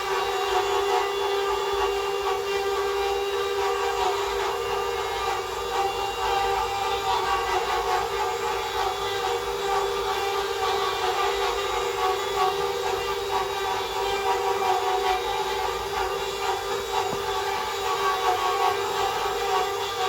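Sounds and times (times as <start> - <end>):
wood router spindle whine: 0.0 - 20.0.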